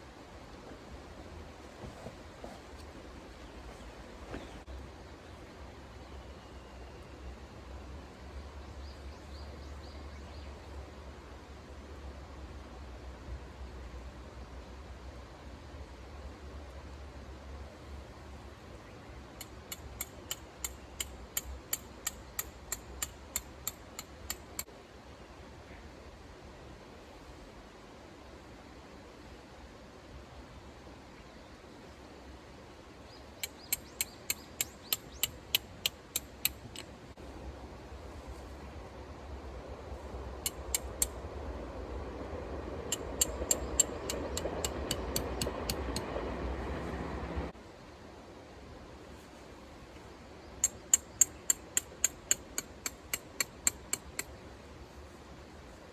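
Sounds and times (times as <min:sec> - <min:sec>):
hammer striking metal pegs: 0:19.4 - 0:24.7, 0:33.4 - 0:36.9, 0:40.5 - 0:41.1, 0:42.9 - 0:46.1, 0:50.6 - 0:54.3
sharp ringing clicks: 0:33.4 - 0:36.9, 0:42.9 - 0:46.1, 0:50.6 - 0:54.3.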